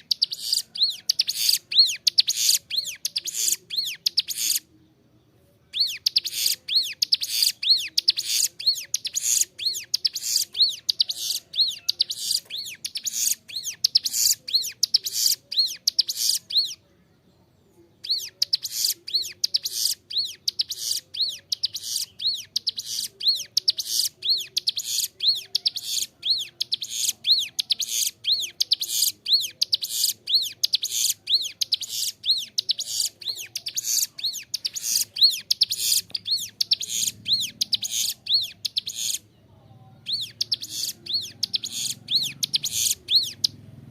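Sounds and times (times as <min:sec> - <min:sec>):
bird singing whistled notes: 0:00.0 - 0:04.9, 0:05.7 - 0:16.9, 0:18.0 - 0:39.3, 0:40.0 - 0:43.6.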